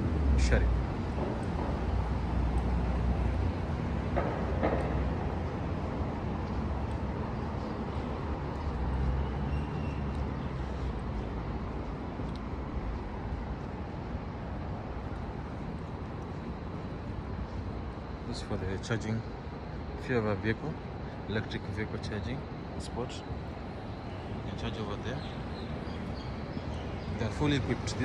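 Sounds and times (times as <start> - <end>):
vehicle traffic rumble: 0.0 - 28.0.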